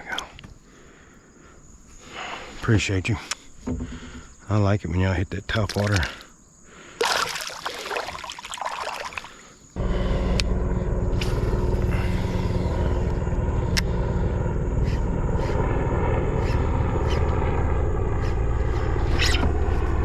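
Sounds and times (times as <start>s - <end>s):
low motor drone: 9.4s - 20.0s.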